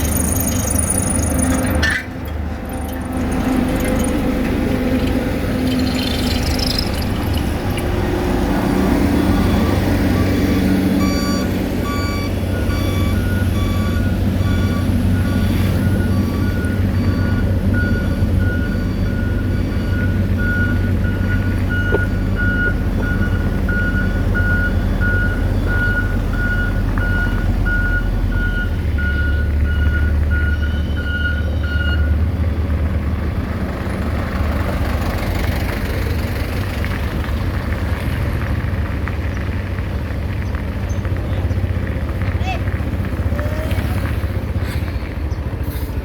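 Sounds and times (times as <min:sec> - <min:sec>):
reversing alarm beeping: 0:00.0 - 0:02.0, 0:05.7 - 0:32.4
heavy engine running: 0:00.0 - 0:46.0.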